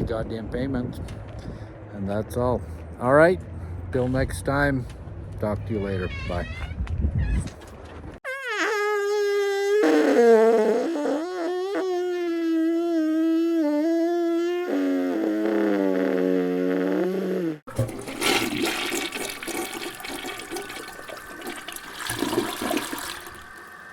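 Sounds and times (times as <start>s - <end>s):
toilet flushing: 17.7s - 23.9s.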